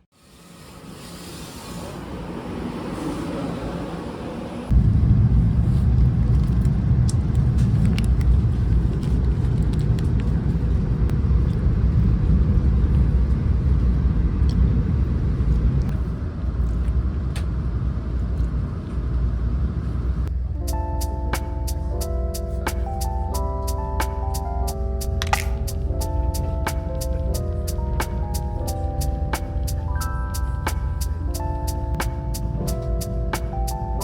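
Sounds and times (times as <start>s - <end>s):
vehicle rumbling: 0.0s - 34.0s
music with plucked notes: 20.6s - 34.0s.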